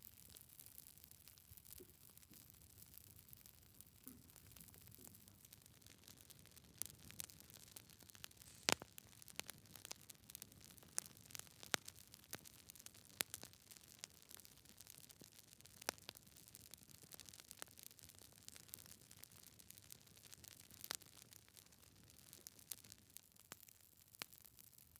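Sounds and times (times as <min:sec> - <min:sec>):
wood fire popping and snapping: 0:00.2 - 0:24.8
faint hiss: 0:08.2 - 0:09.1.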